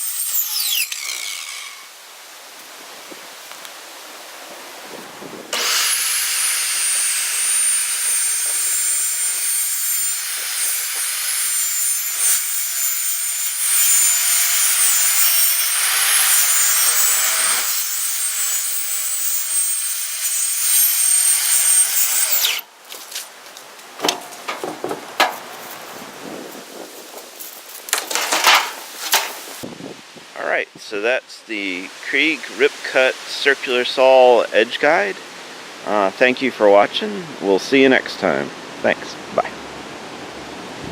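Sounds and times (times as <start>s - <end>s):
circular saw cutting plywood: 0.0s - 1.9s, 5.6s - 22.6s
knocks and clatters: 24.0s - 25.5s, 27.9s - 29.4s.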